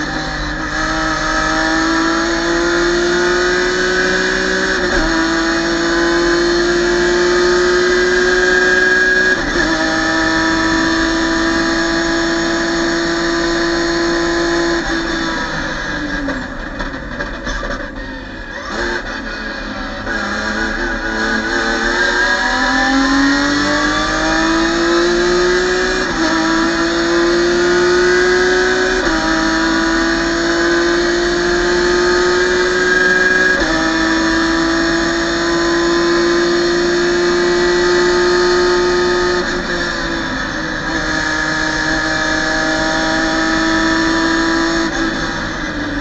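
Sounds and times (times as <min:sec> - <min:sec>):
race car engine at full throttle: 0:00.0 - 0:46.0.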